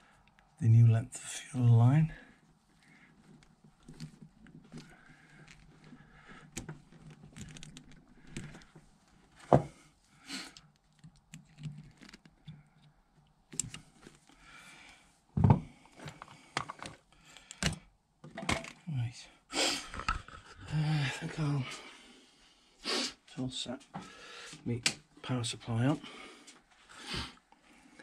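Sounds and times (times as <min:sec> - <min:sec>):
small clicks and taps: 0:10.6 - 0:14.2.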